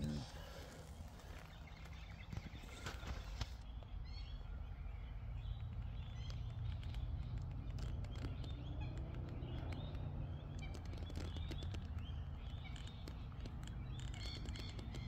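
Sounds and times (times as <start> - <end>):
small birds chirping: 0.0 - 15.0
light clicks: 5.5 - 15.0.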